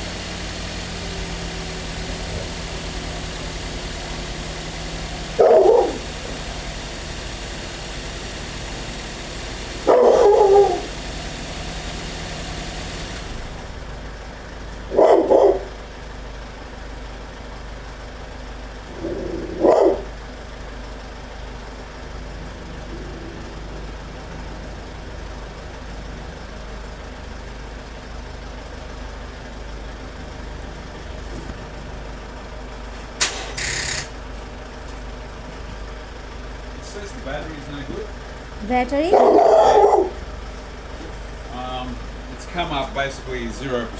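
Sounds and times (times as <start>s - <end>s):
dog barking: 1.8s - 3.1s, 4.1s - 7.0s, 9.8s - 11.0s, 14.9s - 15.8s, 19.0s - 20.2s, 39.1s - 40.4s
low background hum: 36.9s - 43.9s.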